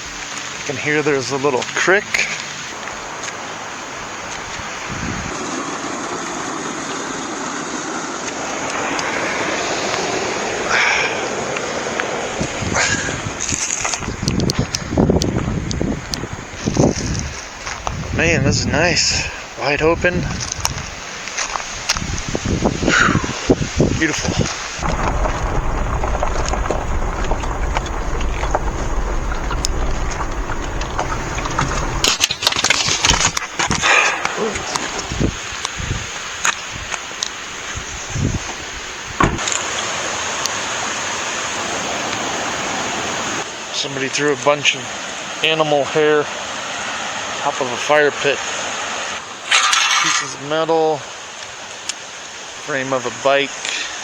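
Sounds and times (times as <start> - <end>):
creek water rushing and babbling: 0.0 - 17.9, 18.9 - 54.0
stones crackling under tyres: 8.2 - 39.7
vehicle road rumble: 19.4 - 33.9, 34.5 - 39.6.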